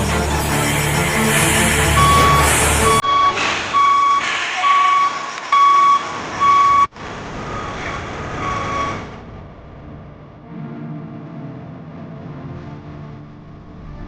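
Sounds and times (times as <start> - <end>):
vehicle noise: 0.0 - 11.3
reversing alarm beeping: 0.5 - 6.9, 7.5 - 9.1.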